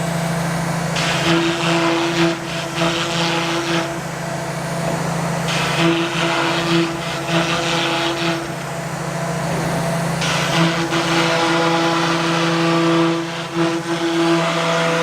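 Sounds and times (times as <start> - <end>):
router bit cutting board: 4.8 - 8.7, 9.5 - 15.0.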